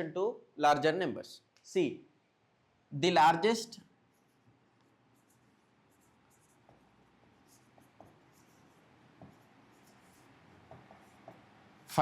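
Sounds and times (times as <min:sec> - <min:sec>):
pen scratching while writing: 0:05.2 - 0:11.5
soft taps: 0:09.1 - 0:09.5, 0:10.6 - 0:11.5.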